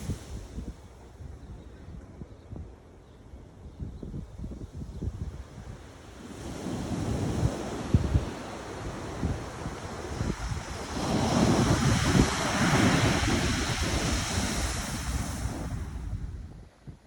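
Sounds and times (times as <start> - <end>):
wave breaking and washing in: 0.0 - 0.8, 5.5 - 16.6
wind rumble on microphone: 0.0 - 17.0.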